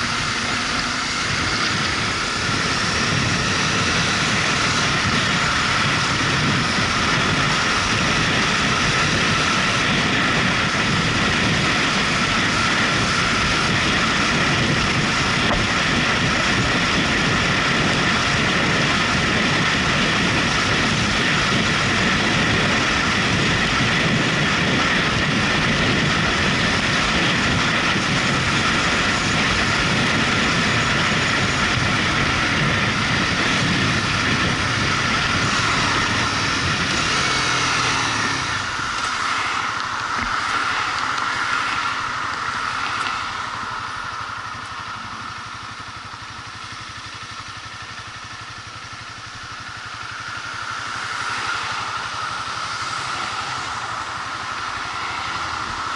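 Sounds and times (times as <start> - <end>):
motorcycle engine and road noise: 0.0 - 55.9.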